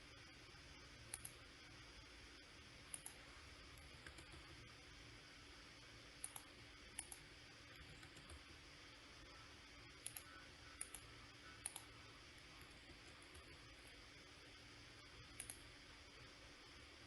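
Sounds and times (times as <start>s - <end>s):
low room hum: 0.0s - 17.0s
computer mouse clicks: 1.1s - 1.4s, 2.8s - 4.6s, 6.2s - 8.5s, 10.0s - 12.0s, 12.6s - 13.6s, 15.2s - 15.7s.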